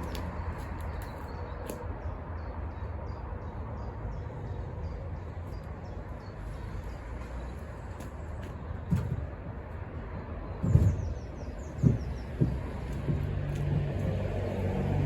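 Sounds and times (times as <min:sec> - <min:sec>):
low outdoor rumble: 0:04.9 - 0:15.0.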